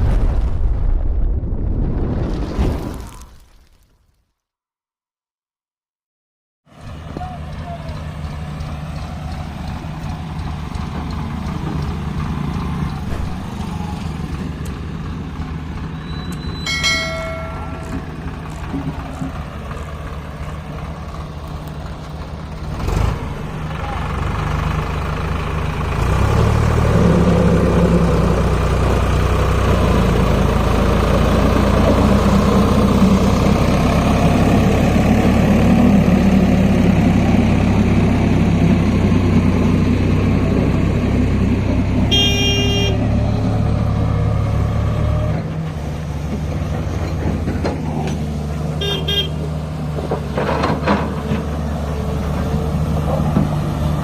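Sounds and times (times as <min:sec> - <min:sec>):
diesel engine running: 0:06.7 - 0:54.0
short horn toot: 0:42.1 - 0:43.1, 0:48.8 - 0:49.4.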